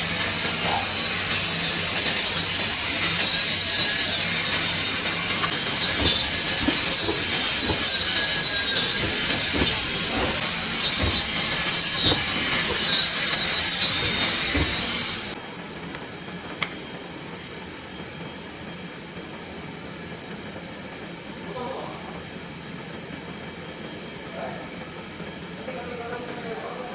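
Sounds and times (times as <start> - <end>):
cutting machine hiss and whine: 0.0 - 15.4.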